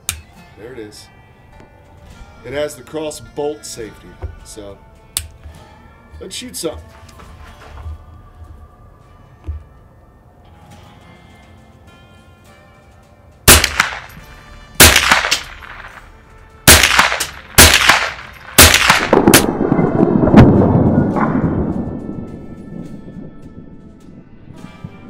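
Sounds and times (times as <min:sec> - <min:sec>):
rifle shots: 0:13.5 - 0:16.1, 0:16.7 - 0:19.8.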